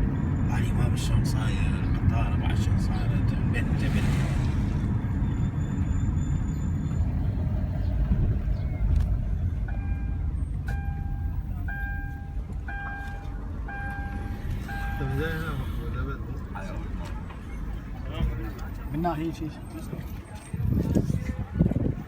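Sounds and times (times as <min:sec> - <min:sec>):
motor vehicle rumble: 0:00.0 - 0:22.0
electronic beeps: 0:09.7 - 0:15.4.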